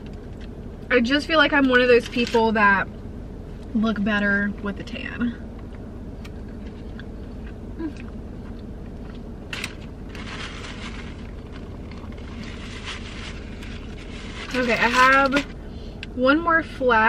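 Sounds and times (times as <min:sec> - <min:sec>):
car cabin hum: 0:00.0 - 0:17.0
person chewing food: 0:06.2 - 0:10.0
paper napkin rustling: 0:10.1 - 0:15.5.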